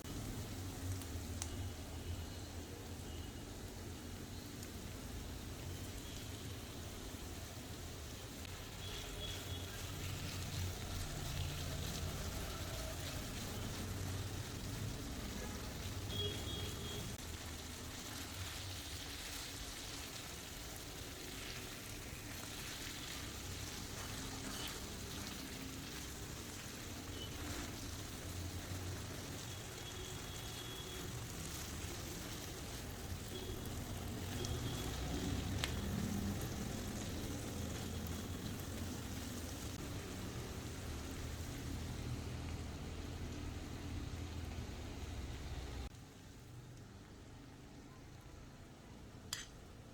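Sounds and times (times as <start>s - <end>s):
food sizzling in oil: 0.0s - 47.6s.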